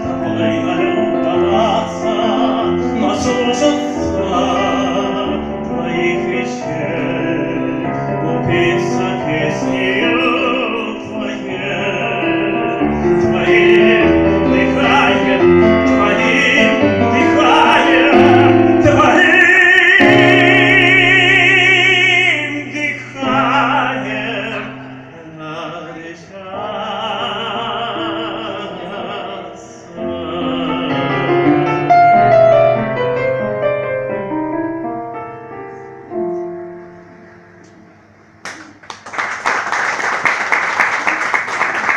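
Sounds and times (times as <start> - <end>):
person singing operatically: 0.0 - 32.0
piano accompaniment: 0.0 - 41.9.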